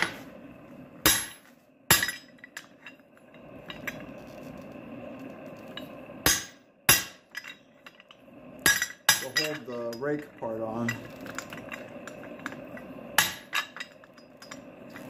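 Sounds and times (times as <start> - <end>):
faint steady hum: 0.0 - 15.0
hammer striking hot steel: 1.0 - 3.9, 5.8 - 14.9
light metallic clinks: 7.3 - 15.0.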